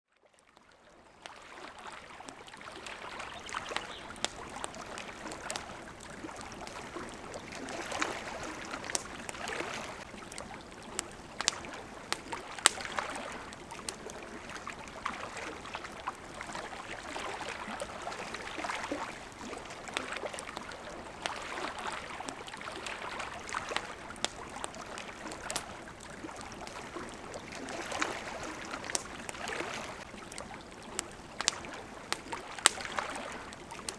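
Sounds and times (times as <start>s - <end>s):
water lapping: 0.3s - 33.9s
campfire crackling: 2.6s - 33.9s.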